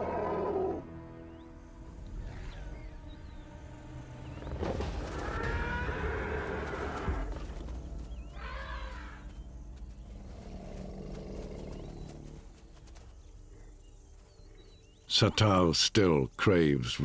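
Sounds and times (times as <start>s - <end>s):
wild animal calls: 0.0s - 0.8s.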